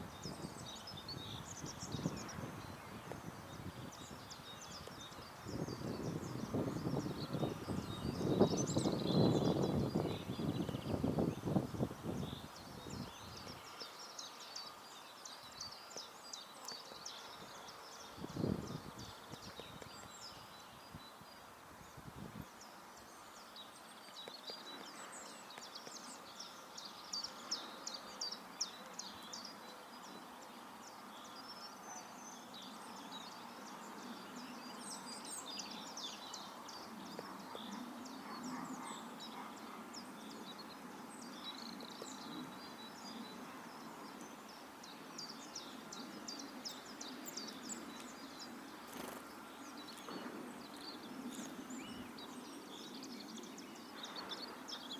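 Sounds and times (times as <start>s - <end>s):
low outdoor background noise: 0.0s - 54.9s
songbirds chirping: 0.0s - 54.9s.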